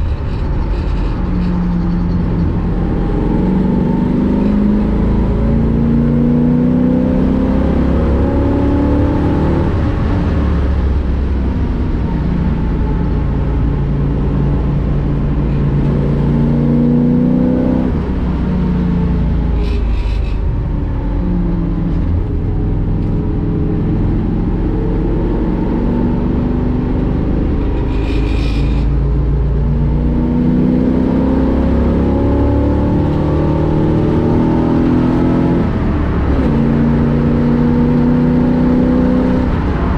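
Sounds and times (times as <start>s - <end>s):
race car engine revving: 0.0s - 11.4s, 21.7s - 39.9s.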